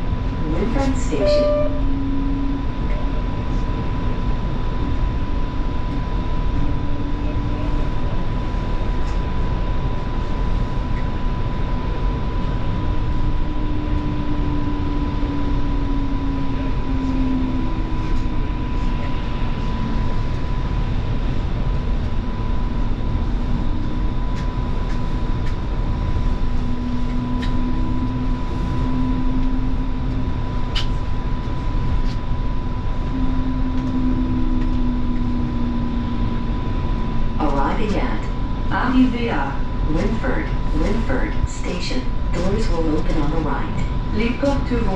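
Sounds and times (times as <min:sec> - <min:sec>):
wheels rumbling on rail: 0:00.0 - 0:44.9
constant high tone: 0:00.9 - 0:02.4.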